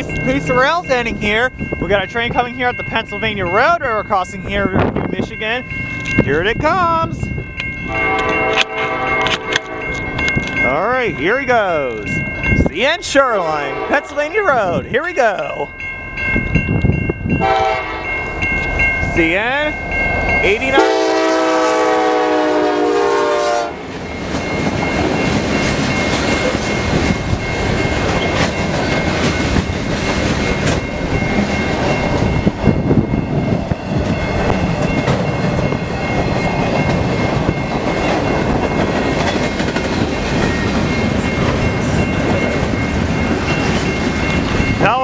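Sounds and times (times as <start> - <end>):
freight train rolling: 0.0 - 45.0
locomotive horn chord: 7.9 - 10.0, 13.6 - 14.2, 17.4 - 18.2, 20.8 - 23.8.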